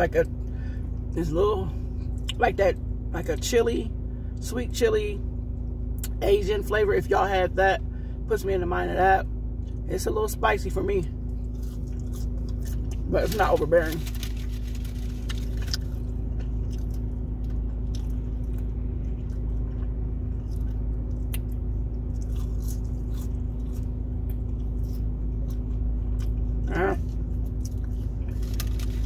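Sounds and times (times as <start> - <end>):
car cabin hum: 0.0 - 29.0
person chewing a chicken nugget: 11.2 - 29.0.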